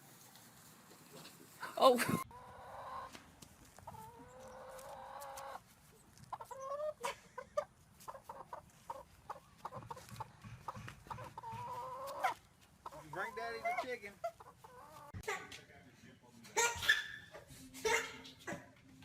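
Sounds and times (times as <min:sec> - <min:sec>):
chicken clucking: 0:01.1 - 0:15.6
chicken calling: 0:01.6 - 0:03.2, 0:03.8 - 0:15.2.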